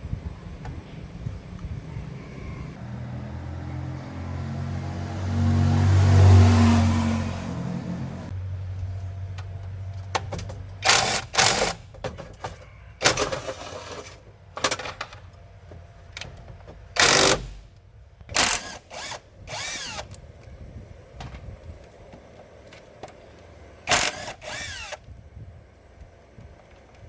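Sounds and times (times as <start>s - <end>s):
power tool bursts: 10.8s - 11.9s, 17.0s - 17.7s, 18.3s - 20.2s, 23.9s - 25.0s.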